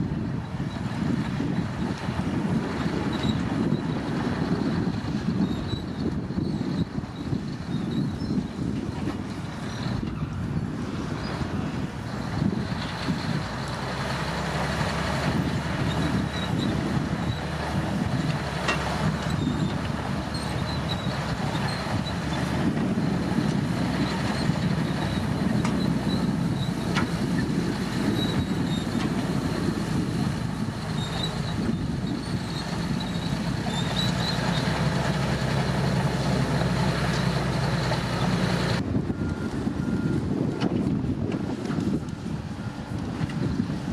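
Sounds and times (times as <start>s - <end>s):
bulldozer diesel engine running: 0.0s - 43.9s
faint high squeaks: 30.9s - 34.7s.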